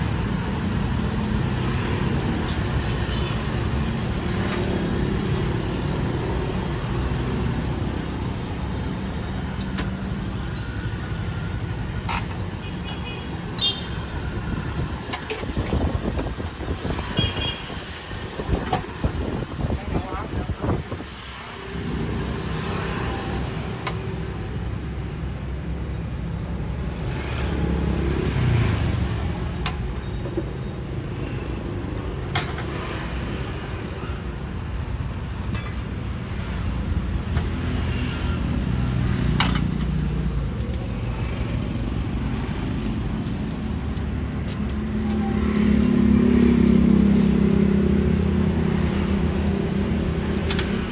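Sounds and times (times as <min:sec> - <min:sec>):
road traffic engine noise: 0:00.0 - 0:50.9.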